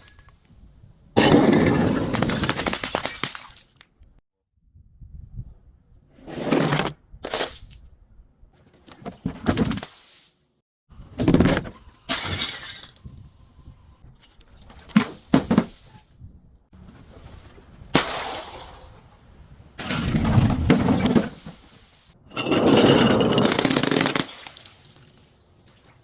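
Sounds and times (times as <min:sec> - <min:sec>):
glass bottle breaking: 0:02.4 - 0:03.8, 0:12.1 - 0:13.0, 0:22.9 - 0:25.1.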